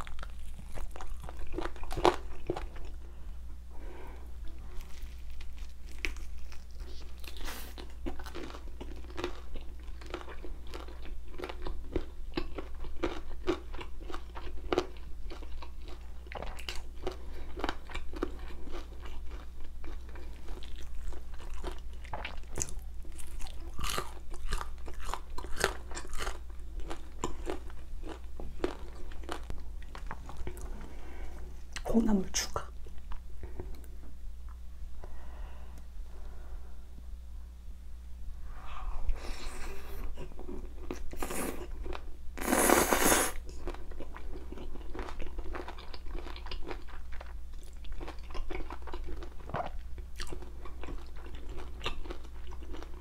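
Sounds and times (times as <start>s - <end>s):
wet crunchy chewing: 0.0s - 3.0s, 4.8s - 30.7s, 40.2s - 53.0s.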